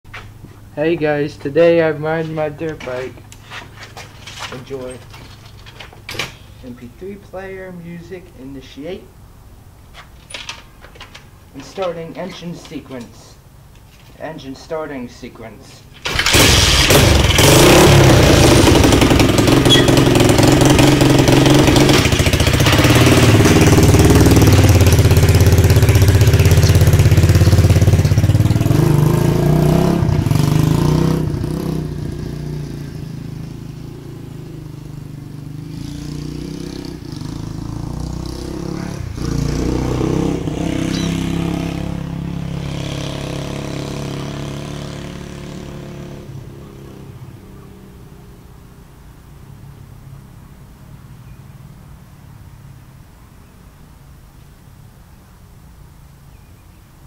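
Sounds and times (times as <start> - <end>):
dirt bike engine revving: 16.0 - 48.3.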